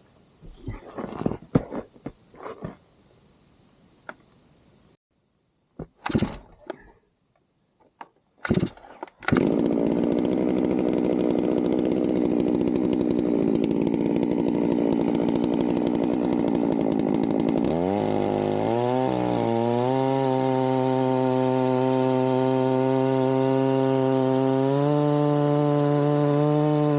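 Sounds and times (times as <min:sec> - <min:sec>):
chainsaw running: 0:06.0 - 0:06.8, 0:08.4 - 0:26.9.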